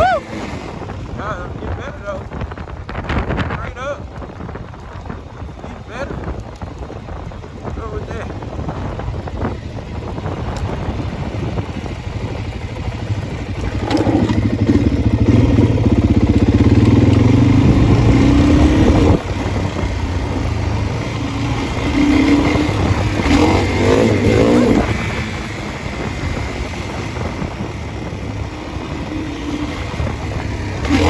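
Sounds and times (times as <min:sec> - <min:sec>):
dirt bike engine revving: 0:00.0 - 0:02.1, 0:10.8 - 0:31.0.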